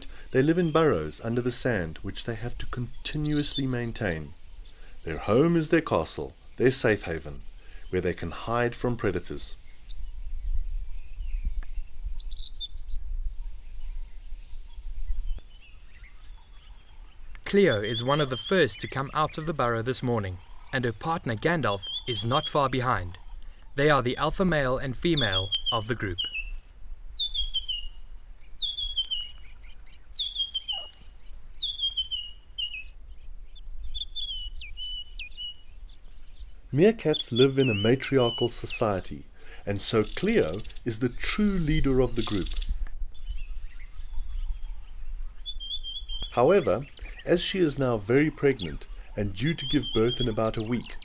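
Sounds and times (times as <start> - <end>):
birds chirping: 0.0 - 51.0
bird singing high notes: 20.1 - 26.6, 27.2 - 33.0, 39.9 - 51.0.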